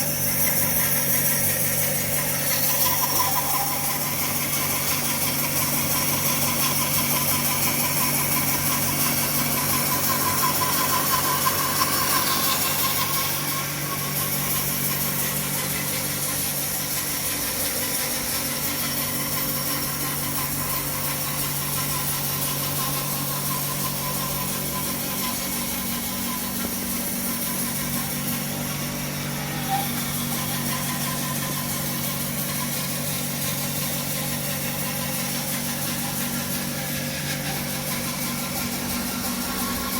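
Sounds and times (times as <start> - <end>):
power saw cutting wood: 0.0 - 39.9.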